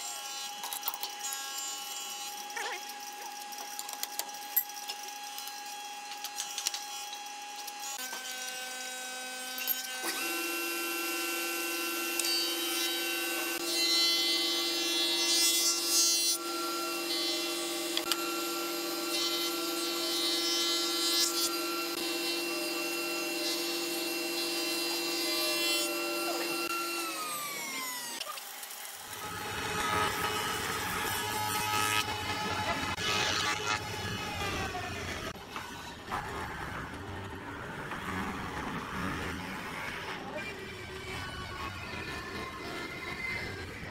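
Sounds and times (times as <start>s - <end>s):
cutter milling wood: 0.0s - 37.1s
spindle moulder motor hum and whine: 16.3s - 43.9s.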